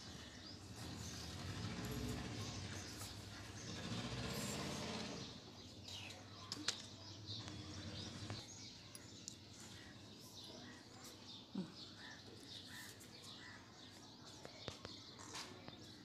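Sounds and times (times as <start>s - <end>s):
small birds chirping faintly: 0.0s - 16.0s.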